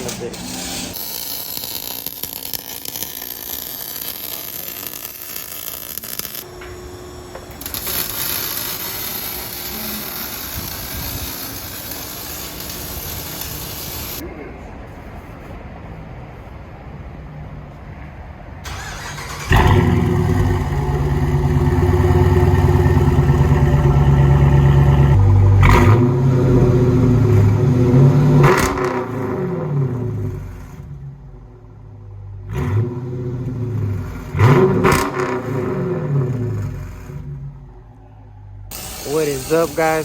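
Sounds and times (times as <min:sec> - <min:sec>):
car engine revving: 0:18.7 - 0:31.4, 0:32.4 - 0:37.7.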